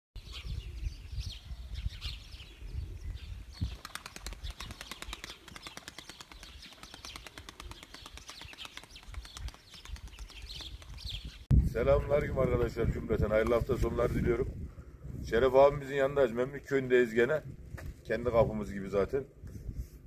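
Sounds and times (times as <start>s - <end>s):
wind rumble on microphone: 0.2s - 4.8s, 9.0s - 16.2s, 17.3s - 20.0s
birds chirping: 0.2s - 12.9s
fast wingbeats: 3.6s - 11.5s.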